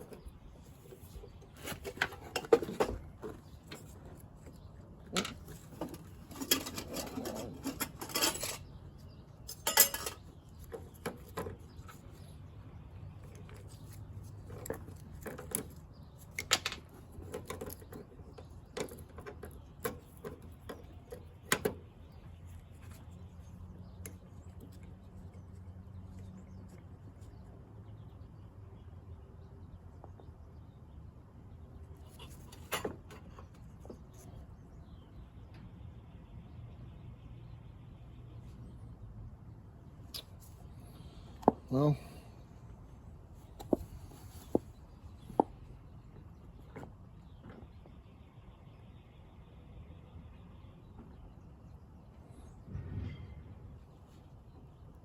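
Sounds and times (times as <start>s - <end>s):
metal hand tools clinking and scraping: 5.2s - 8.8s, 9.4s - 10.3s.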